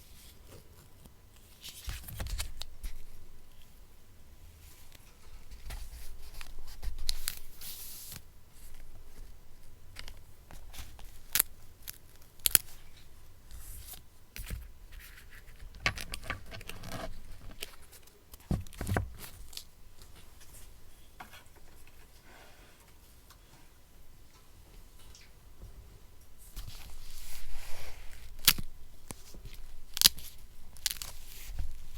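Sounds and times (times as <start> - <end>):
paper rustling and crinkling: 12.6 - 20.5
papery rasp: 14.9 - 17.8.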